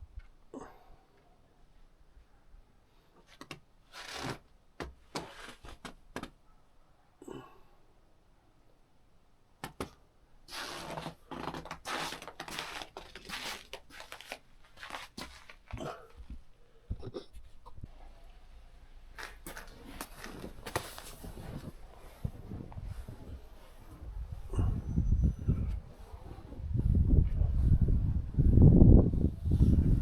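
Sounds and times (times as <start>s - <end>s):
deep snow crunching: 10.5s - 15.6s, 19.1s - 24.2s.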